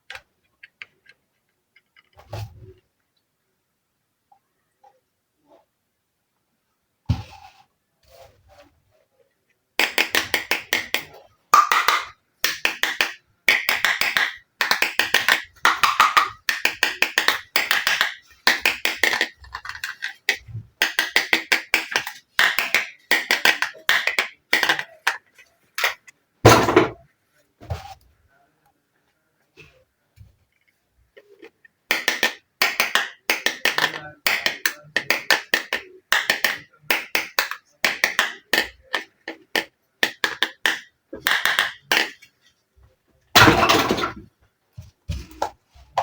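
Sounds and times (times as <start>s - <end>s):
plastic toy pieces clicking: 11.6s - 25.2s.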